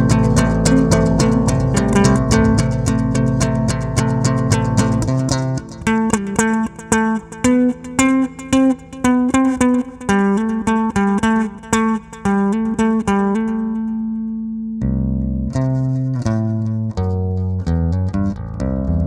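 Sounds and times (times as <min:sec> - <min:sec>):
bass line: 0:00.0 - 0:06.1, 0:13.8 - 0:19.0
guitar picking single notes: 0:00.0 - 0:19.0.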